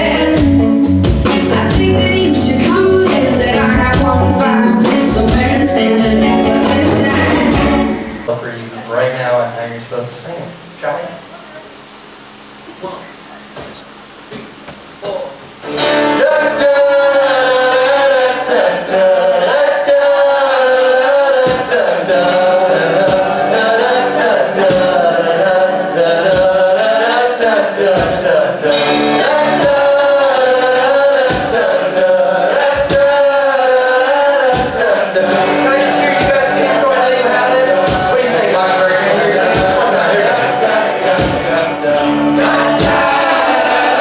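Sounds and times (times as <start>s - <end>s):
vocal harmony singing: 0.0s - 8.9s, 15.0s - 44.0s
drum hits: 2.6s - 8.3s, 31.2s - 31.7s, 34.5s - 36.7s, 37.7s - 44.0s.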